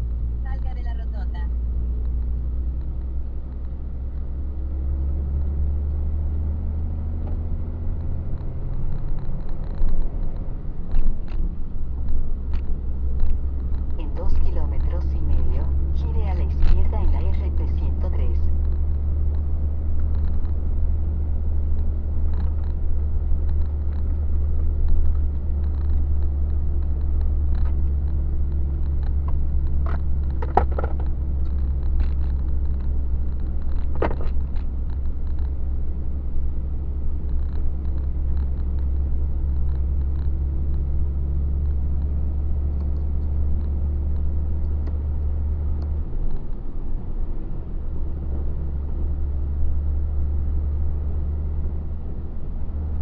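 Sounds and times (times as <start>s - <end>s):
truck engine rumble from cab: 0.0s - 53.0s
clicks and knocks: 27.0s - 32.9s.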